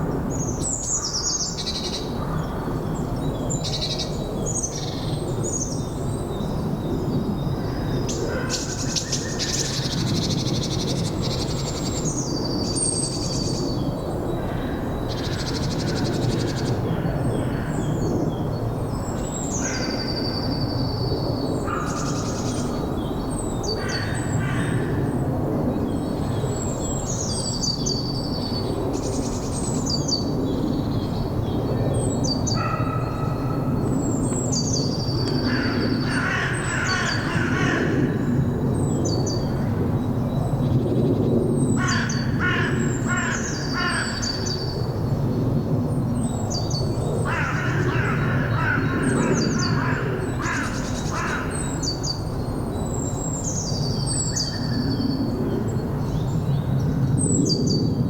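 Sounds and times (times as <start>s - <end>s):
bird harsh repeated calls: 35.5s - 38.0s, 41.8s - 44.5s.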